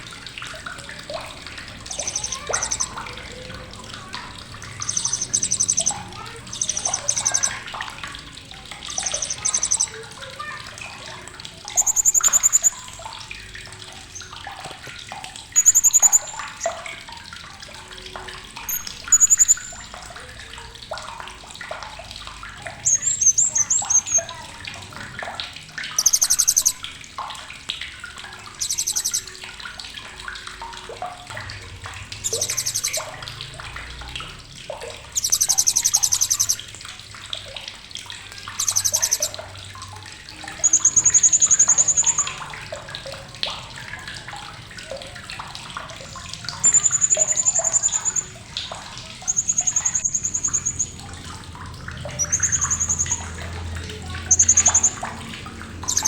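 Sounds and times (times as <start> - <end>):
parrot calling and trilling: 1.8 - 7.8, 8.8 - 13.1, 15.5 - 17.0, 18.6 - 20.0, 22.8 - 24.5, 25.8 - 26.9, 28.5 - 29.5, 32.2 - 33.6, 35.1 - 36.7, 38.5 - 39.4, 40.4 - 42.6, 46.0 - 51.2, 52.0 - 55.1, 55.8 - 56.0.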